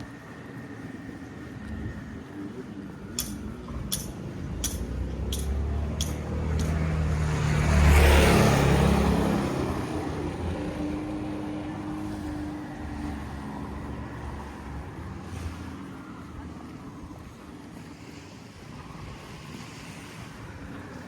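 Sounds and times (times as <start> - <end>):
motor vehicle passing by: 4.4 - 16.2.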